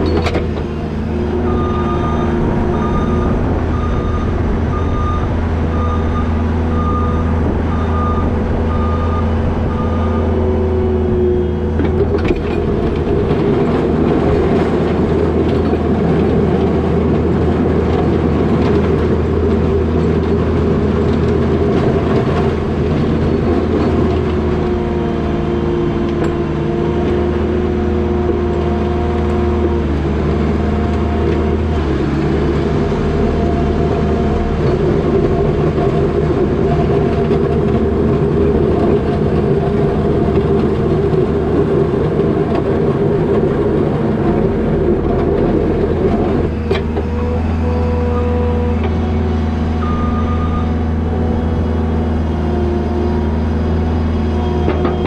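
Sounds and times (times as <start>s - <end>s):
diesel engine running under load: 0.0s - 55.0s
backup alarm beeping: 1.3s - 10.4s, 49.8s - 50.8s.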